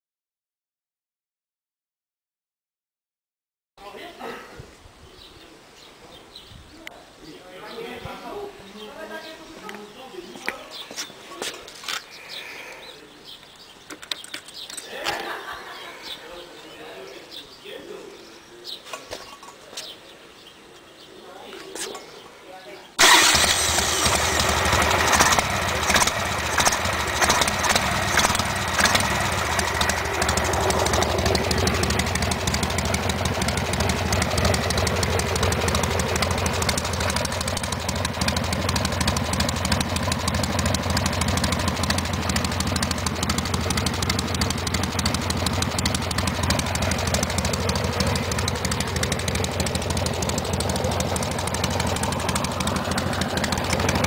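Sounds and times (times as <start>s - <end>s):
engine running: 23.0s - 54.0s.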